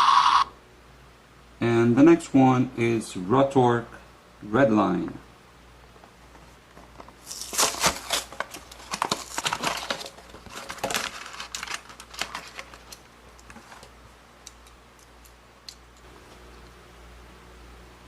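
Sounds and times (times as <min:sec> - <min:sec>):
plastic toys clicking and crinkling: 0:07.2 - 0:14.8.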